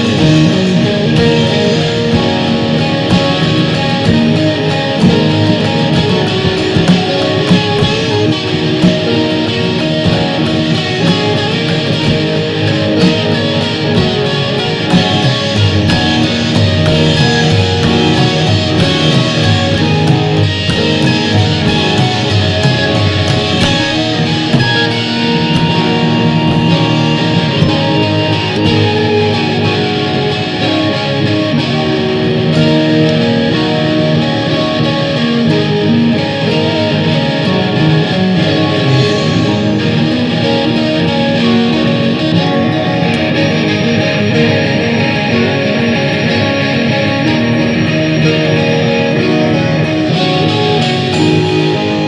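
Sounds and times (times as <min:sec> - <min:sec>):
drum and cymbal hits: 0:00.0 - 0:46.5, 0:49.8 - 0:52.0
band jamming with guitar and synth: 0:00.0 - 0:52.0.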